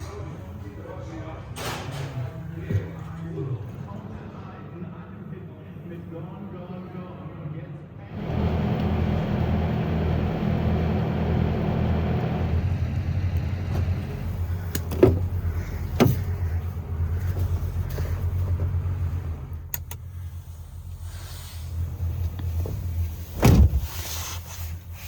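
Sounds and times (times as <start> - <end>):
truck engine humming: 8.2 - 23.9.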